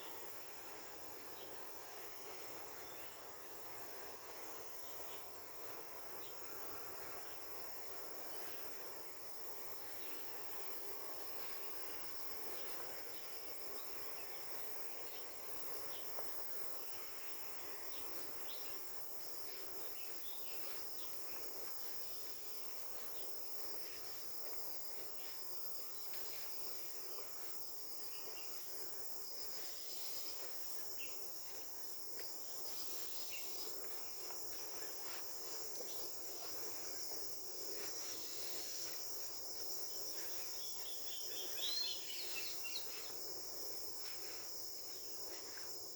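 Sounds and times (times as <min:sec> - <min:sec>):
insects trilling: 0:11.6 - 0:45.9.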